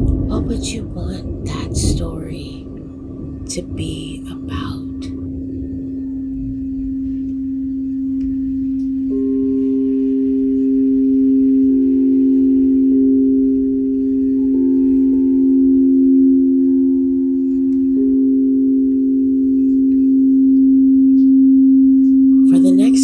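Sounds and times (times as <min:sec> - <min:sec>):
crystal singing bowls ringing: 0:07.4 - 0:21.3.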